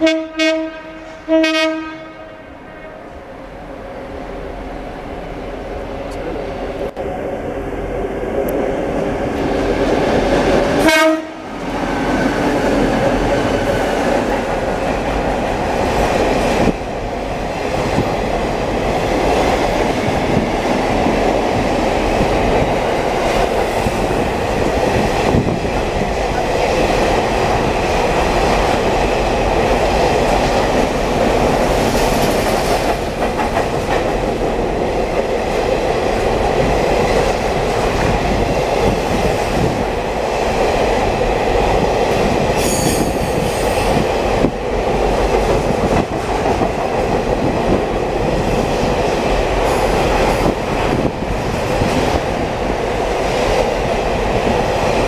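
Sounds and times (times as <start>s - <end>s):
locomotive horn: 0.0s - 3.1s, 10.8s - 11.6s
freight train wagons rolling past: 8.7s - 55.0s.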